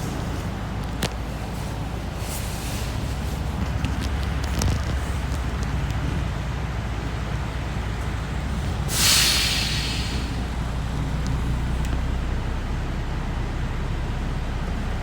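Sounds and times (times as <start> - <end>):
bus engine and road rumble: 0.0 - 15.0
air brake hiss: 8.9 - 10.6.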